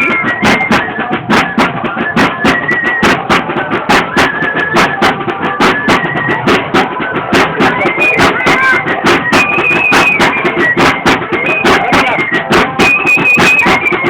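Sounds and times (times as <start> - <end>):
high flute melody: 0.0 - 14.0
steady drumbeat: 0.0 - 14.0.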